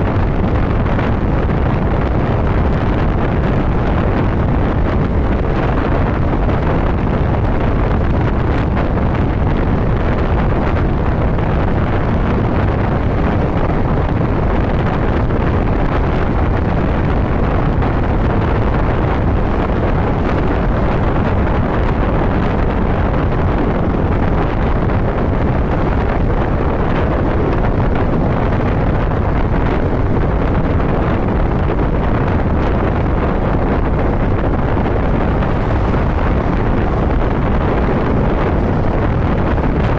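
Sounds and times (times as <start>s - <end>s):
motorcycle running: 0.0s - 39.9s
wind rush on microphone: 0.0s - 39.9s.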